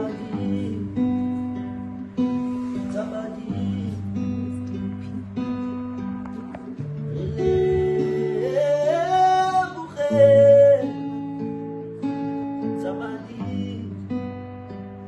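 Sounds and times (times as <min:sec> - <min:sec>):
person singing wordlessly: 0:00.0 - 0:01.2, 0:02.9 - 0:04.5, 0:07.0 - 0:11.2, 0:12.8 - 0:14.1
acoustic guitar music: 0:00.0 - 0:15.0.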